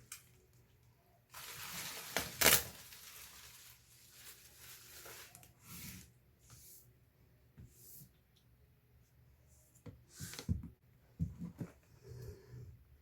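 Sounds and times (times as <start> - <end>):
packaging rustling and crinkling: 1.3 - 6.1.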